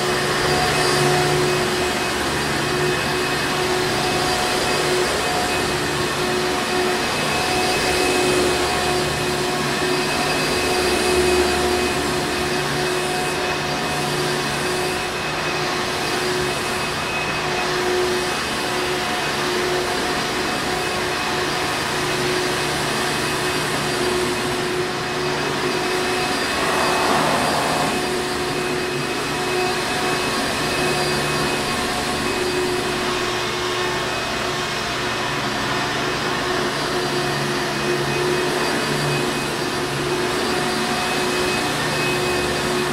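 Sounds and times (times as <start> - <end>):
vacuum cleaner running: 21.1 - 34.6.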